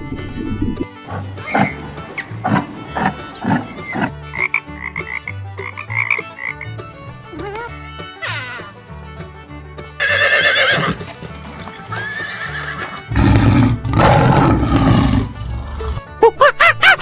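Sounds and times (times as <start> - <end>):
horse neighing: 1.1 - 4.1, 10.0 - 11.0, 11.9 - 16.0.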